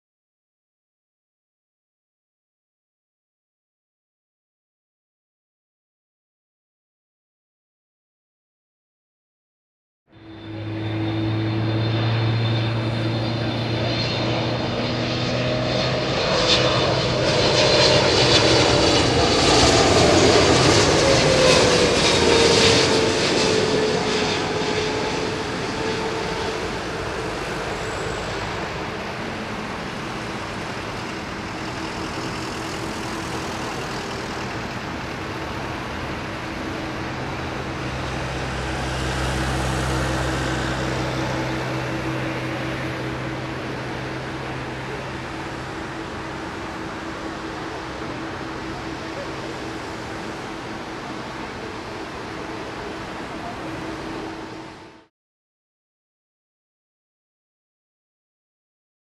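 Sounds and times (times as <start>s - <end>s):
jet airliner passing: 10.1s - 55.1s.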